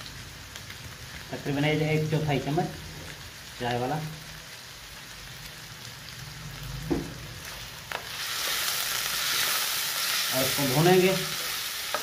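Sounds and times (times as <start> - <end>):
chicken and onions sizzling in oil: 0.0 - 12.0.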